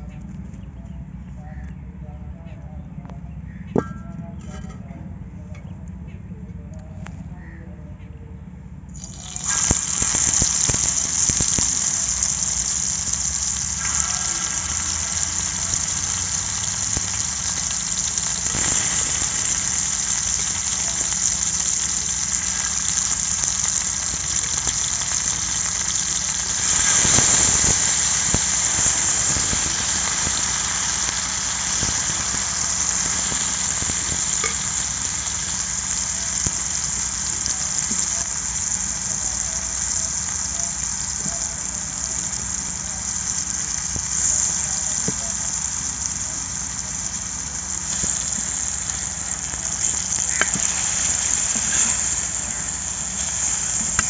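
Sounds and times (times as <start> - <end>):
meat sizzling in hot oil: 9.0 - 54.0.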